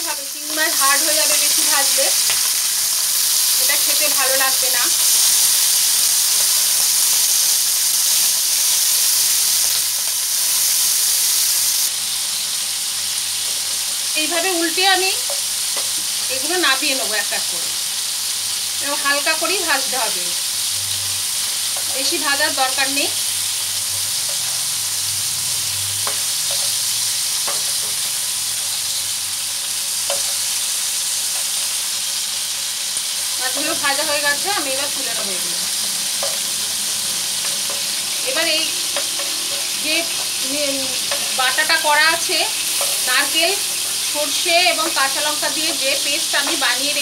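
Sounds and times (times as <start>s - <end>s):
prawns sizzling in oil: 0.0s - 47.0s
spatula tapping pan: 27.4s - 28.0s.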